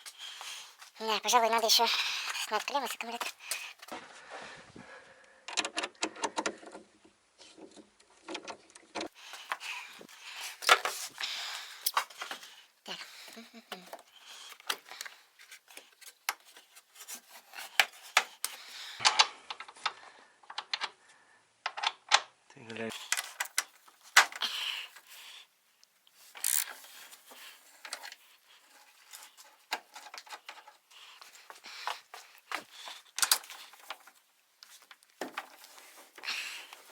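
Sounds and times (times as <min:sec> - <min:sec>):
hands clicking and tapping parts: 0:02.2 - 0:04.0, 0:08.0 - 0:21.0, 0:21.6 - 0:22.3, 0:22.9 - 0:25.1, 0:25.8 - 0:36.9.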